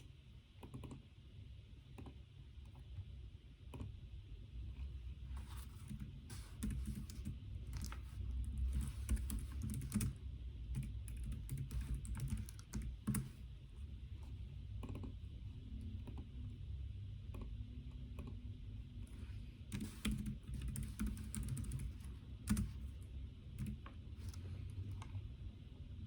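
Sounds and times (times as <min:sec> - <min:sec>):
low room hum: 0:00.0 - 0:26.0
computer keyboard typing: 0:00.6 - 0:01.1, 0:05.5 - 0:13.4, 0:14.7 - 0:15.2, 0:16.0 - 0:16.6, 0:19.7 - 0:25.2.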